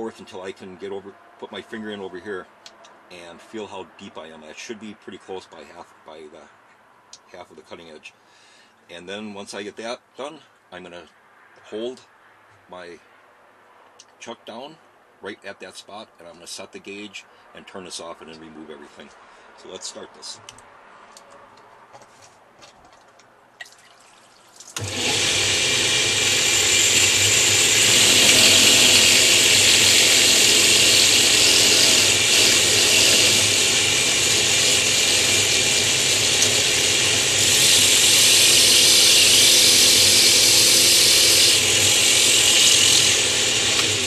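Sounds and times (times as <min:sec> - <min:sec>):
power tool grinding stone: 0:24.8 - 0:44.0.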